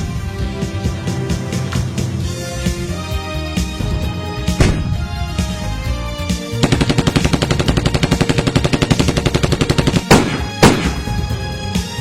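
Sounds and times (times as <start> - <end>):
background music: 0.0 - 12.0
loud heavy impact: 4.6 - 5.2
rapid automatic gunfire: 6.6 - 11.2.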